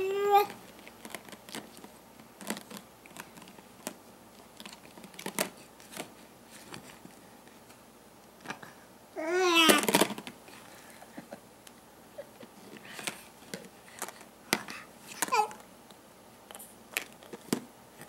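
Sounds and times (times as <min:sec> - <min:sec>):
baby squealing: 0:09.2 - 0:09.9.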